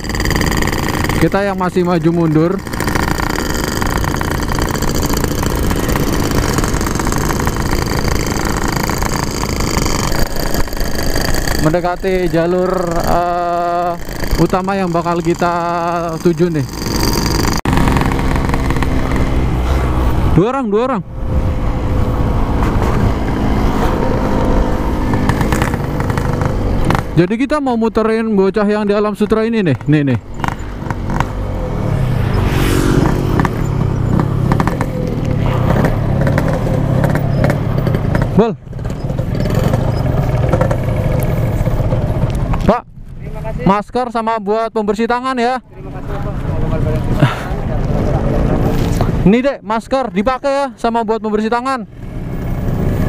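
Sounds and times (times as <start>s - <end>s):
motorcycle engine running: 0.0s - 20.4s, 21.0s - 27.4s, 28.0s - 43.5s
rush of noise: 30.4s - 37.7s.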